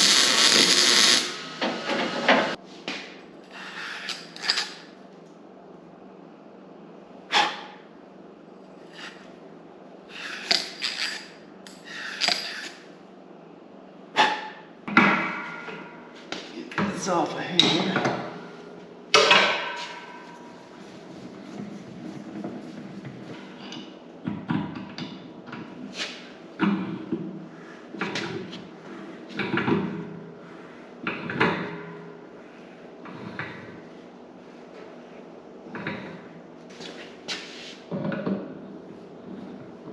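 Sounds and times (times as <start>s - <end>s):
clunks and scrapes of tools: 0.4s - 4.8s, 17.6s - 27.2s.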